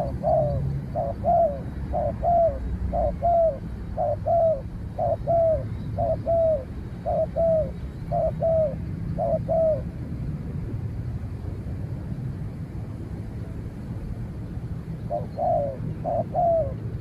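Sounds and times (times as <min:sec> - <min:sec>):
dove cooing: 0:00.0 - 0:09.9, 0:15.1 - 0:17.0.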